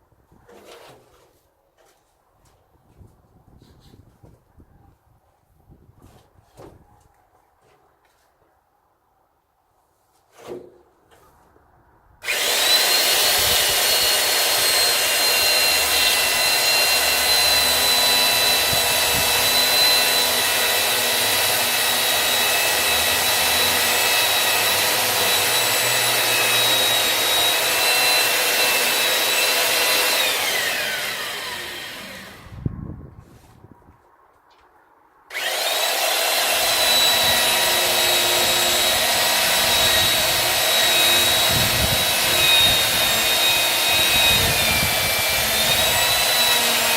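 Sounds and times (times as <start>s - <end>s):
thump: 10.4s - 10.8s
electric chainsaw cutting wood: 12.2s - 32.6s, 35.3s - 46.9s.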